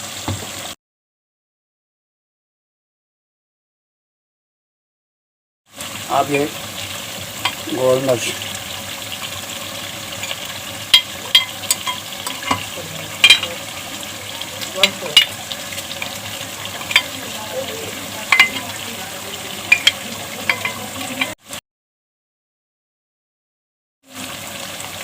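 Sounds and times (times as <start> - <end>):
food sizzling in a pan: 0.0 - 0.8, 5.7 - 21.6, 24.0 - 25.0
spoon scraping and knocking pan: 6.2 - 21.4.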